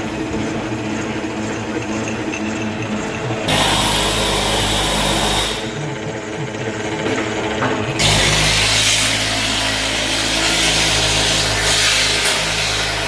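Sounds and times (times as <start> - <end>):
boring machine droning: 0.0 - 13.0.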